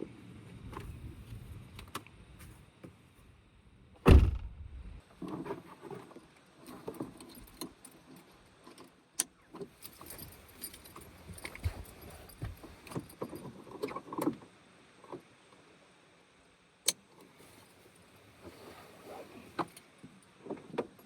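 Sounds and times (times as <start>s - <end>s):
heavy thud: 4.0s - 5.0s.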